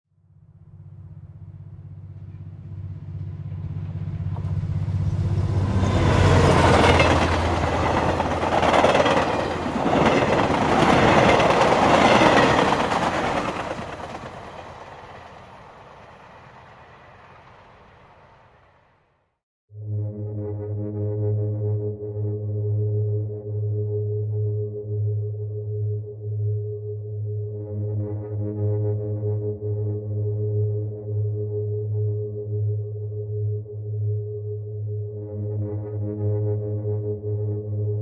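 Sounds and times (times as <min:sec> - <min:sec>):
train passing with rail clatter: 0:01.8 - 0:18.8.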